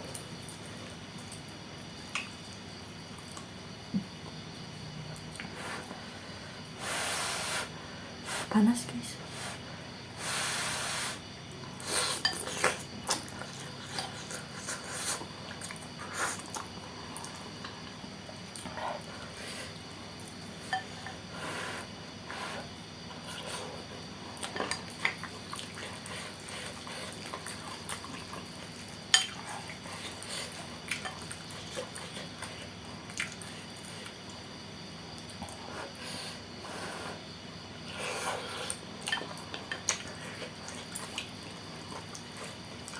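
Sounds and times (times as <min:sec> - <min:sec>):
chewing and mouth noises: 0:24.3 - 0:34.4, 0:38.6 - 0:42.9
cutlery clinking against bowl: 0:29.1 - 0:29.4.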